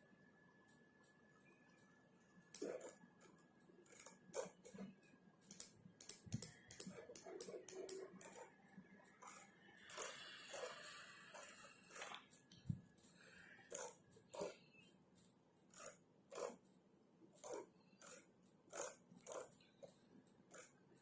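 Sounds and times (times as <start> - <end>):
faint high whine: 0.0 - 3.8
typing on computer keyboard: 2.6 - 14.6, 17.4 - 21.0.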